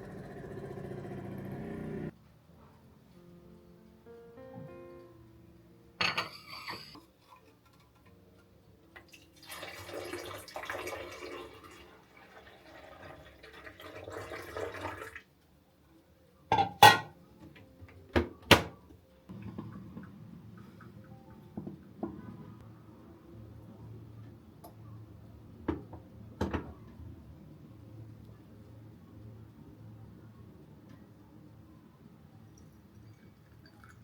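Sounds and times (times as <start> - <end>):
dishes and utensils clinking: 6.0 - 8.2, 16.5 - 17.2
liquid pouring: 9.0 - 15.2, 32.6 - 34.0.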